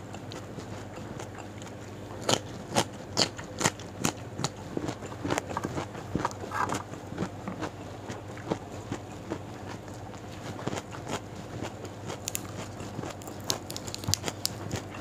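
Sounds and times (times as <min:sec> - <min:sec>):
person chewing: 0:00.1 - 0:15.0
raw bean snapping: 0:12.2 - 0:12.5, 0:13.2 - 0:14.6.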